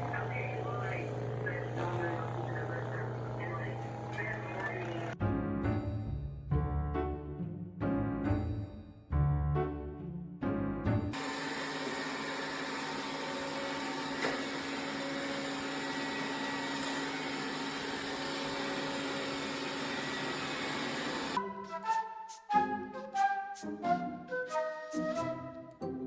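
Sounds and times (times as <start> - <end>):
appliance motor whirring: 0.0 - 5.2, 11.2 - 21.4.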